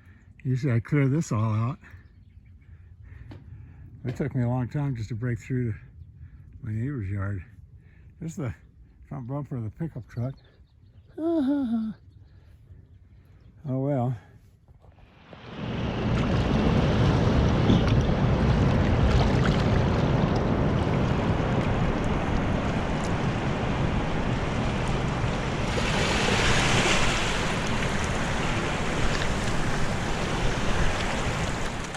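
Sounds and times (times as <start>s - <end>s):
wind buffeting microphone: 15.2s - 31.9s.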